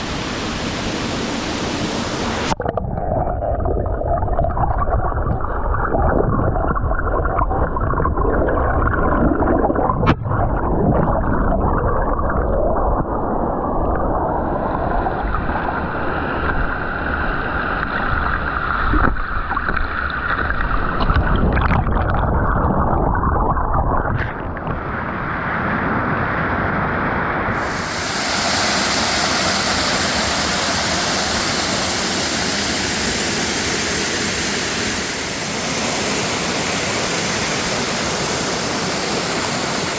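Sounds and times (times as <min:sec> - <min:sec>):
waterfall rushing: 0:00.0 - 0:02.6, 0:27.6 - 0:39.9.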